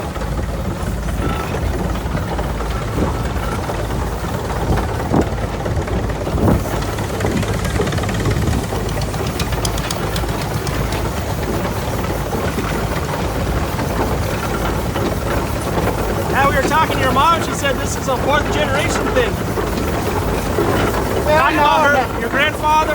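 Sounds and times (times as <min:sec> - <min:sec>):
tractor engine running: 0:00.0 - 0:22.9
sharp knocks: 0:08.4 - 0:11.5.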